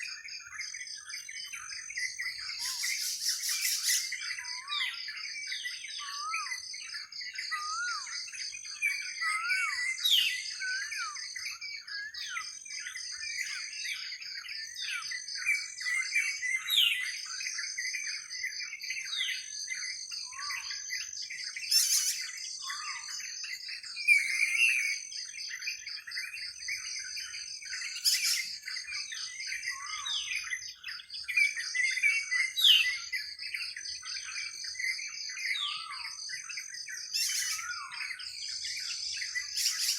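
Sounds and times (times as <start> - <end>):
songbirds chirping and whistling: 0.0 - 39.9.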